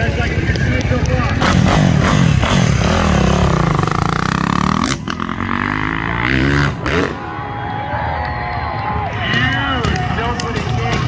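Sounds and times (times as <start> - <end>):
motorcycle engine revving: 0.0 - 7.7.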